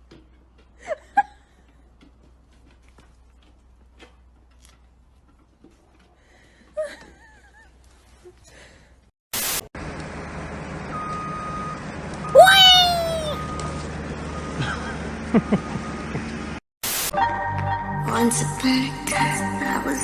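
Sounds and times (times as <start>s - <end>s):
cat meowing: 12.4s - 13.4s.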